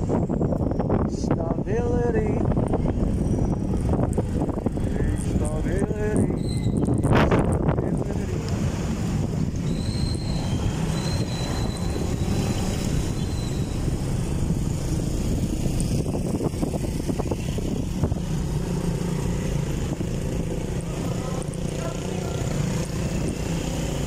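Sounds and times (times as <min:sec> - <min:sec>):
wind on microphone: 0:00.0 - 0:21.6
motorcycle engine drone: 0:02.2 - 0:24.0.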